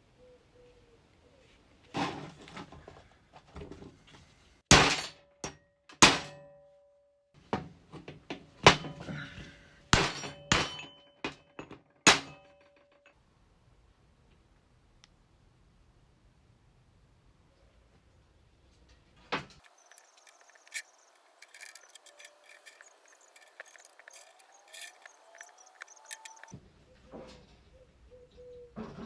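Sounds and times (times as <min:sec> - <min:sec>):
sharp metal knocks: 0:04.7 - 0:06.7, 0:08.6 - 0:09.1, 0:10.0 - 0:13.0, 0:19.6 - 0:26.5
metal tools rattling: 0:10.0 - 0:13.1, 0:19.6 - 0:26.5.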